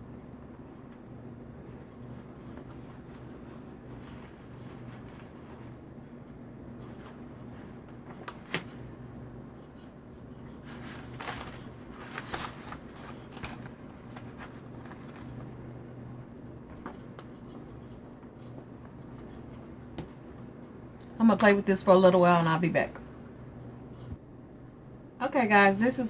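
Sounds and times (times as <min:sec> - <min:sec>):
steady low hum: 0:00.0 - 0:26.0
paper rustling: 0:10.4 - 0:15.6.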